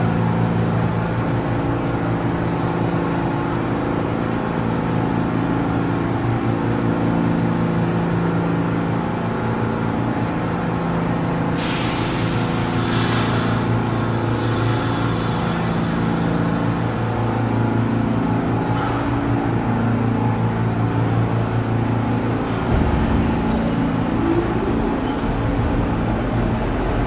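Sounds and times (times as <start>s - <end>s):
subway train low hum: 0.0s - 27.0s
hiss of air: 11.6s - 16.0s.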